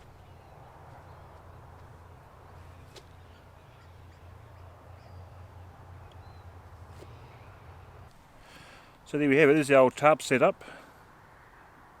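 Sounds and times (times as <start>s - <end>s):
distant road traffic rumble: 0.0s - 12.0s
faint bird call: 2.6s - 7.9s.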